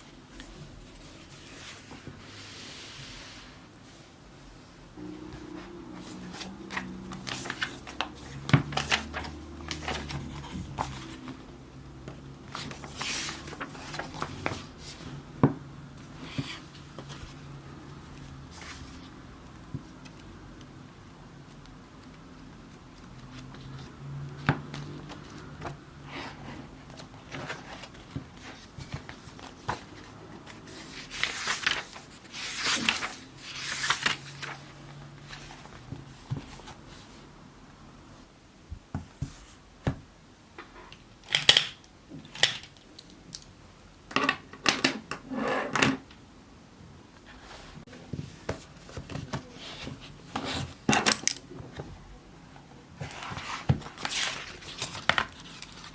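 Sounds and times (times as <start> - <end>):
paper rustling: 5.0 - 11.4, 12.1 - 15.2, 23.1 - 37.2, 47.3 - 51.8, 53.0 - 55.9.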